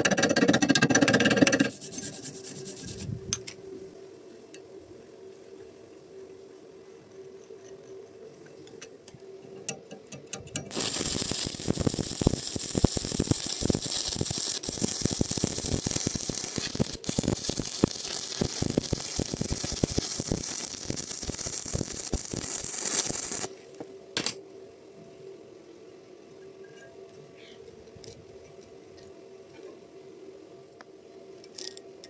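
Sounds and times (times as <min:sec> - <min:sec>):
arc welding crackling hiss: 0:10.4 - 0:23.9.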